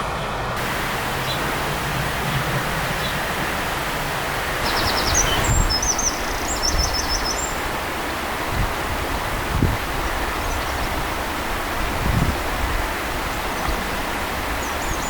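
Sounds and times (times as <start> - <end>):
rushing outdoor background noise: 0.0 - 15.0
songbird trilling and chirping: 4.6 - 7.6.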